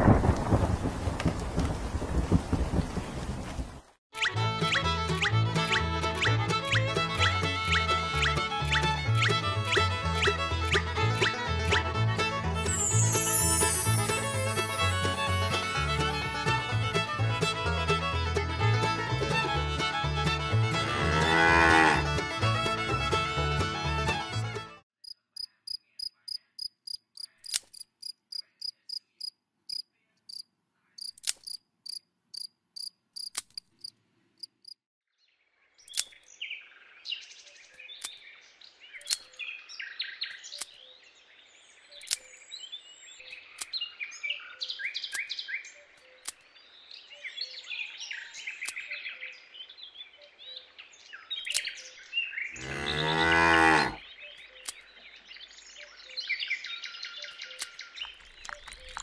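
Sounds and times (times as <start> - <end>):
cow mooing: 20.7 - 22.2, 52.6 - 54.0
cricket chirping: 25.0 - 34.8.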